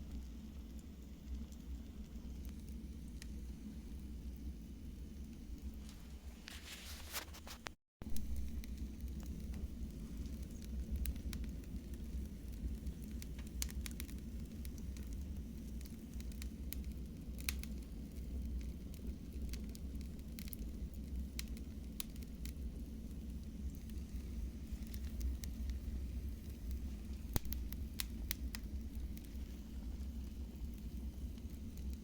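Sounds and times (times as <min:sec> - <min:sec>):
fire crackling and popping: 0:00.0 - 0:32.0
low fire rumble: 0:00.0 - 0:32.0.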